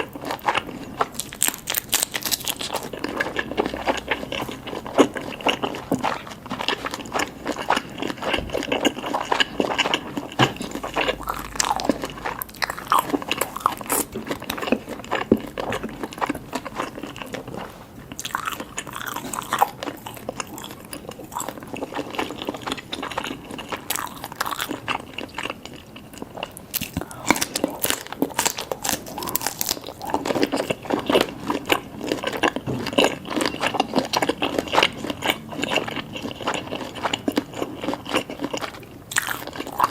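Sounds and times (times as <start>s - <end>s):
chewing and mouth noises: 0.0s - 39.9s.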